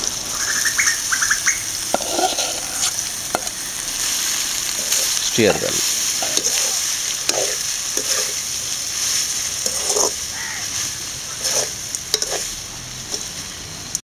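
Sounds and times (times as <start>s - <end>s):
food sizzling in hot oil: 0.0s - 14.0s
metal spatula scraping a pan: 1.9s - 2.9s, 6.1s - 13.3s.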